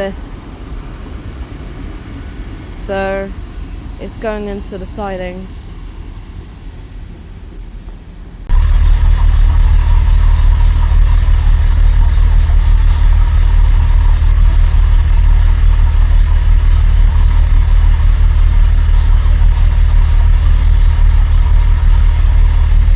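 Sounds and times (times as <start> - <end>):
diesel train engine rumble: 0.0 - 22.9.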